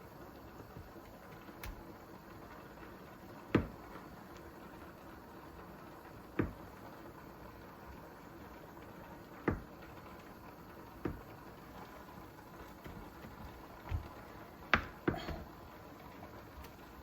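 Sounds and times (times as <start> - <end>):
faint steady hiss: 0.0 - 17.0
sharp knocks of kitchen items: 3.5 - 3.8, 6.4 - 6.6, 14.7 - 15.5.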